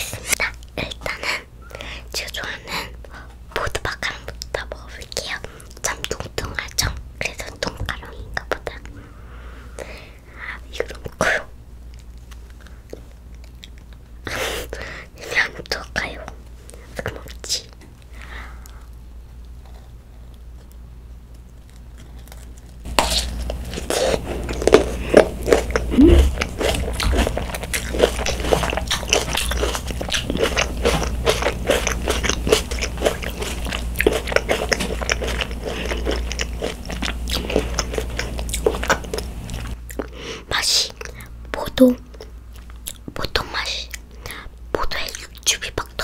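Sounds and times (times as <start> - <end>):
crunching and wet chewing: 11.8 - 14.8, 15.4 - 41.4, 42.1 - 46.0
biting into macaron: 21.6 - 40.1.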